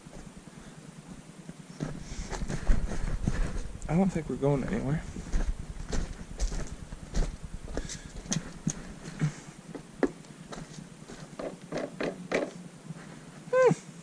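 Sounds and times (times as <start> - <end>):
low rumble: 2.0 - 10.0.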